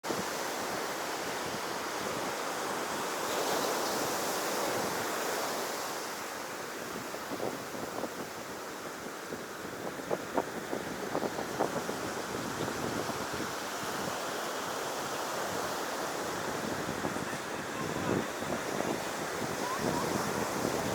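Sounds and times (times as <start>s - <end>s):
ocean surf breaking on shore: 0.1s - 20.9s
wind buffeting microphone: 6.8s - 14.3s, 15.0s - 20.9s.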